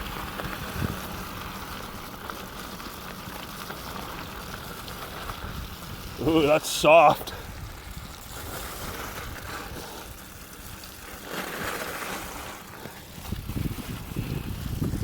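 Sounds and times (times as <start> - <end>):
bike tyres rolling through slush: 0.0 - 15.0
wind buffeting microphone: 0.3 - 1.2, 7.3 - 10.2, 13.1 - 15.0.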